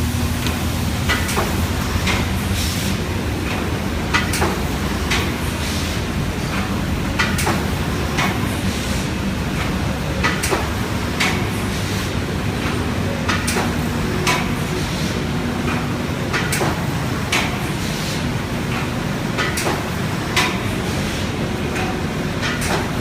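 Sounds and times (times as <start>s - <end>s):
machine humming: 0.0s - 17.4s.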